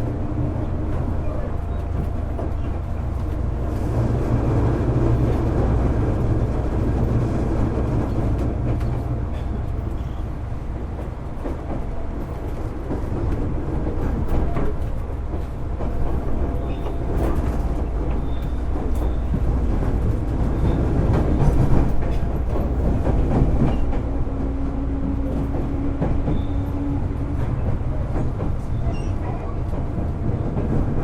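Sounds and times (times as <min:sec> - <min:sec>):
train wheels rumbling: 0:00.0 - 0:31.0.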